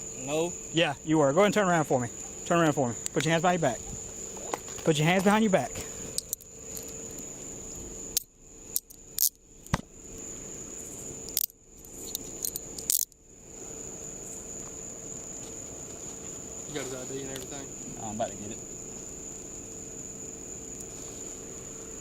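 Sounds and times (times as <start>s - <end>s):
insect trill: 0.0s - 22.0s
handcuffs clicking and jingling: 6.2s - 6.9s, 12.1s - 13.1s.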